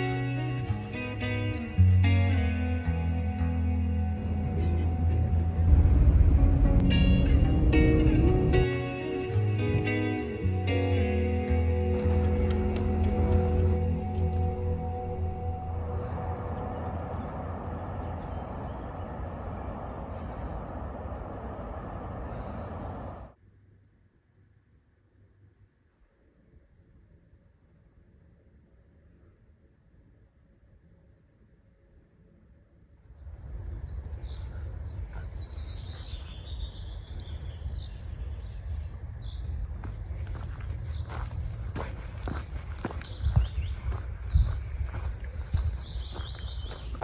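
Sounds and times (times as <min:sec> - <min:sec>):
low rumble with hiss: 0:00.0 - 0:09.7, 0:12.8 - 0:25.8
small birds chirping and singing: 0:33.4 - 0:47.0.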